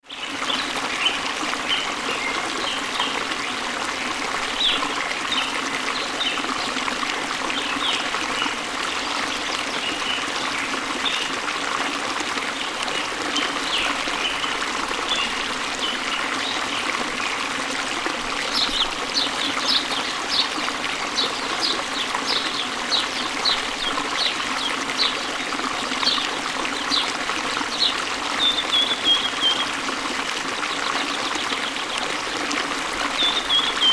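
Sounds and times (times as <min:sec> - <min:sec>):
stream trickling: 0:00.0 - 0:33.9
birds chirping: 0:26.0 - 0:29.7, 0:33.2 - 0:33.9.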